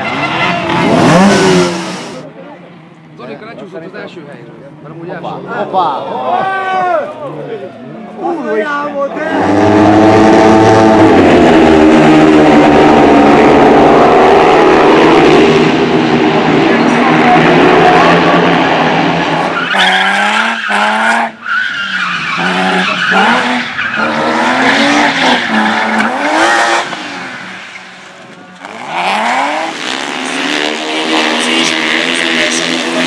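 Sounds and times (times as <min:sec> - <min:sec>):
racing car engine revving: 0:00.0 - 0:02.2, 0:09.2 - 0:28.0, 0:28.6 - 0:33.0
tyres skidding and squealing: 0:00.0 - 0:02.4, 0:04.8 - 0:33.0.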